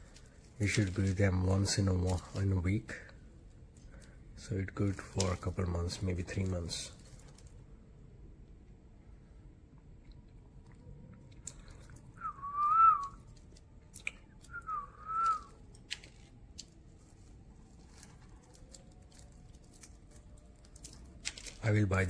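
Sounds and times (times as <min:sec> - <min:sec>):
wavering whistled notes: 0:12.1 - 0:13.3, 0:14.4 - 0:15.6.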